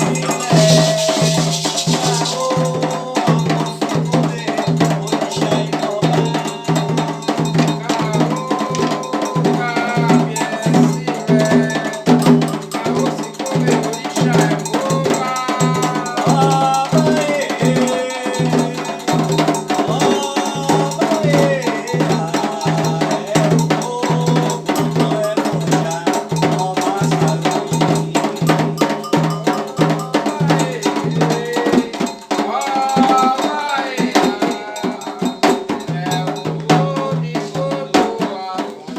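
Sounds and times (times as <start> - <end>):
ringing metal bell: 0.0 - 33.3
drums beating: 0.0 - 38.9
voices singing: 0.0 - 38.9.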